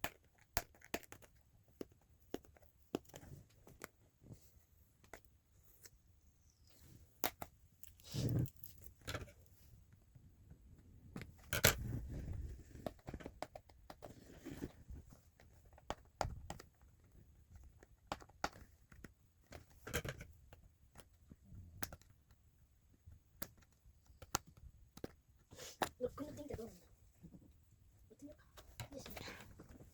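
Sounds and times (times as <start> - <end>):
plastic toy clicks and taps: 17.6 - 21.2, 23.4 - 25.2.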